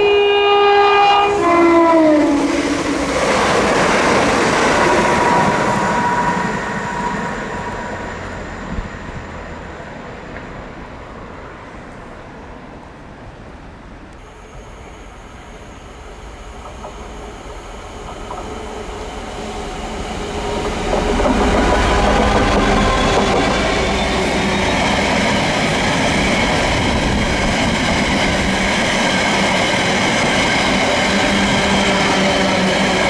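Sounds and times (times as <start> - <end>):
train two-tone horn: 0.0 - 3.2
train wheels rushing on rails: 1.0 - 12.3, 14.4 - 33.0.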